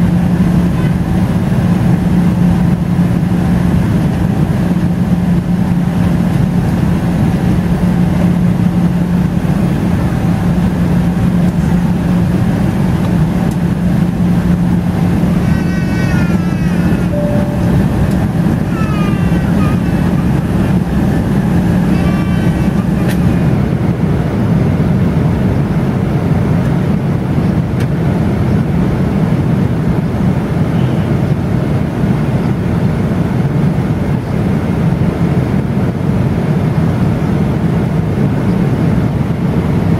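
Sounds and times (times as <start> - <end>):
low hum: 0.0 - 28.8
jet engine rush: 0.0 - 39.9.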